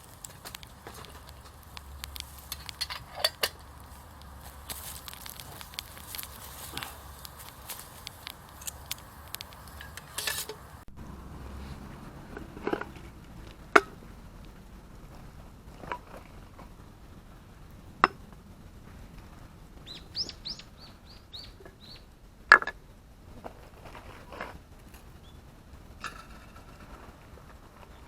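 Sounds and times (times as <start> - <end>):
sharp clicks: 0.0 - 10.7.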